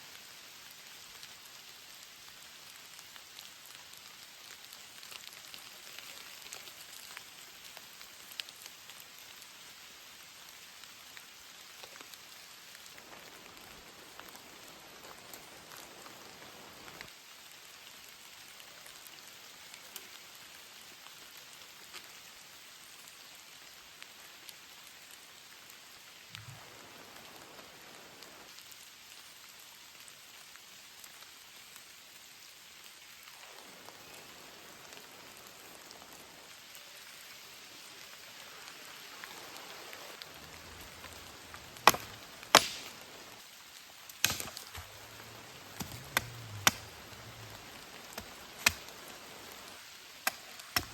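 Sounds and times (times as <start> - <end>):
steady rain falling: 0.0 - 50.9
blade chopping wood: 41.8 - 43.0, 44.2 - 45.0, 45.7 - 48.9, 50.2 - 50.9.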